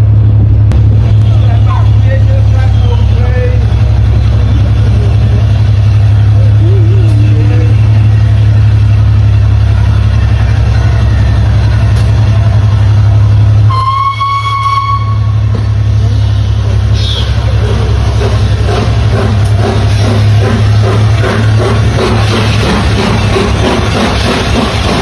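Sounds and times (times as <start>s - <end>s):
train running with low drone: 0.0s - 25.0s
train horn: 13.7s - 15.5s.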